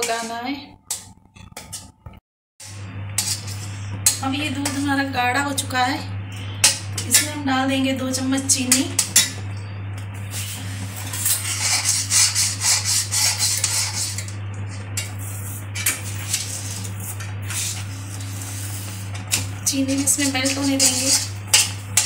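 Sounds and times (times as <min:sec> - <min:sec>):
low hum: 0:00.0 - 0:22.0
metal spatula scraping a pan: 0:02.6 - 0:05.0, 0:10.3 - 0:14.4, 0:15.0 - 0:22.0.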